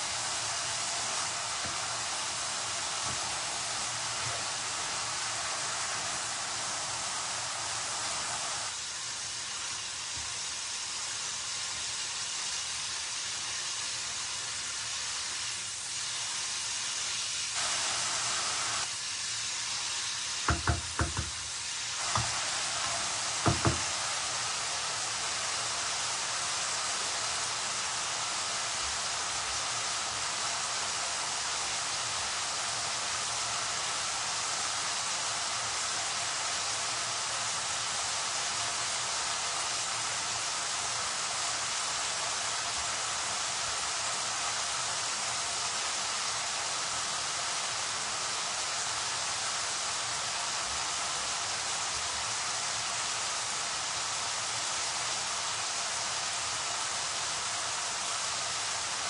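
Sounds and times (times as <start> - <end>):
food sizzling in oil: 0.0 - 59.0
utensil knocking on pan: 20.5 - 24.0.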